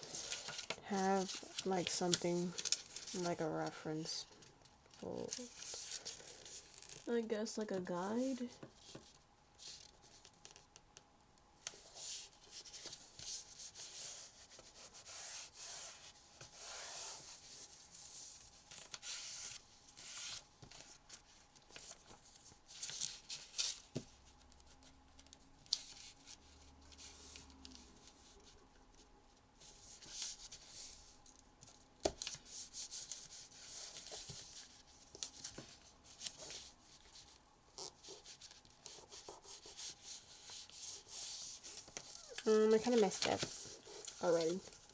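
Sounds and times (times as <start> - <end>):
paper crinkles and taps: 8.6 - 9.2, 9.8 - 11.8, 22.8 - 26.0, 31.2 - 40.7, 41.3 - 44.9
paper rustling and swishing: 38.1 - 44.9.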